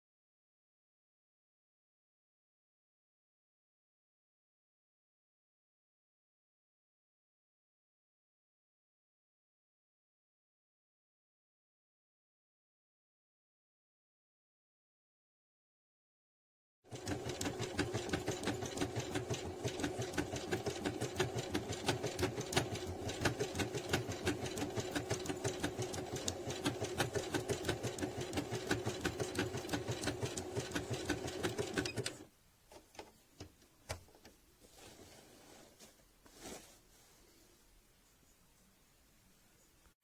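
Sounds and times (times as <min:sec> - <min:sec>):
sewing machine stitching: 0:16.9 - 0:32.3.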